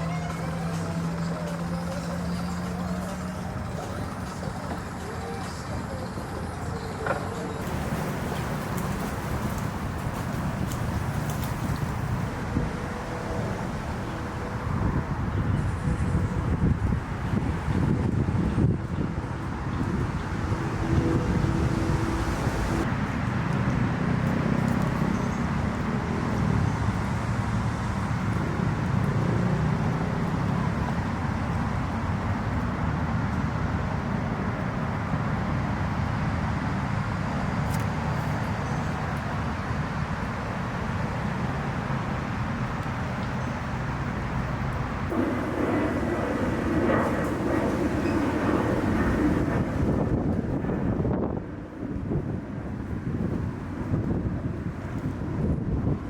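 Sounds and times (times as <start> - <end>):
motor engines running: 0.0 - 22.9, 44.7 - 51.4
wind noise: 7.6 - 56.0.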